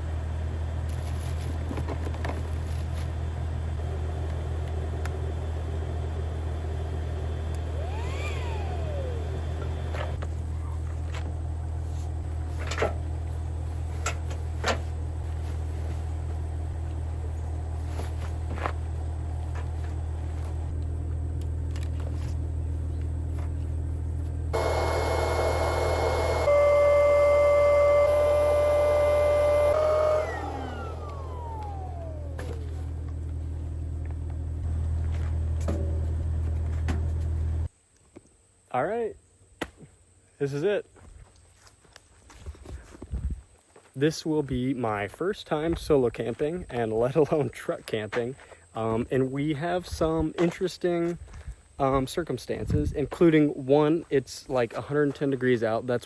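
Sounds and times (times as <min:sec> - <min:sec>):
vehicle engine idling: 0:00.0 - 0:37.7
whine sliding down in pitch: 0:07.7 - 0:10.9, 0:24.6 - 0:33.2.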